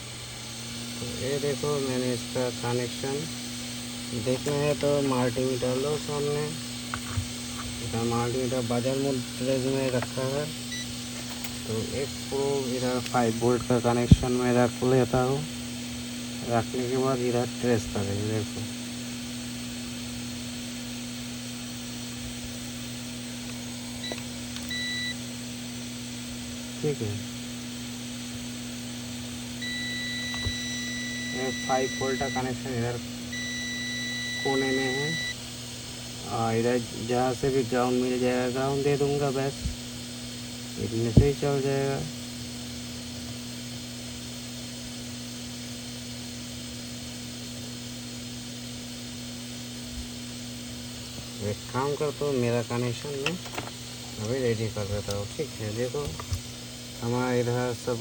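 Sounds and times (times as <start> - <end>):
electrical hum and hiss: 0.0 - 58.0
multimeter continuity beep: 7.8 - 11.0, 24.0 - 25.3, 29.6 - 35.4.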